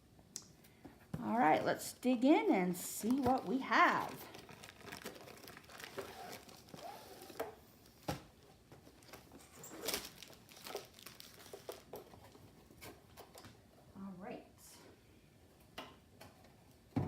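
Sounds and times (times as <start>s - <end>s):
packaging crinkling and rustling: 2.8s - 13.6s.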